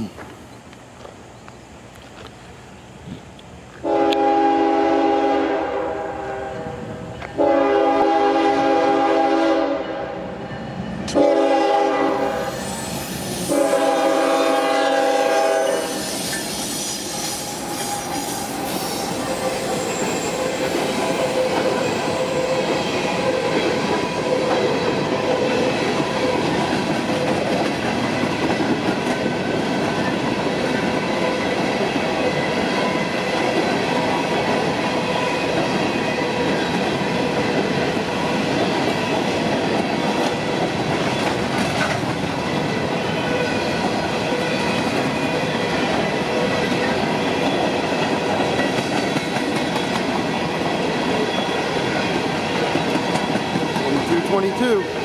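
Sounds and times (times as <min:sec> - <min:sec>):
locomotive horn: 0:03.8 - 0:06.8, 0:07.4 - 0:10.3, 0:11.1 - 0:12.6, 0:13.5 - 0:16.0
train wheels clacking on rails: 0:12.2 - 0:55.0
thin steady squealing: 0:15.8 - 0:22.5.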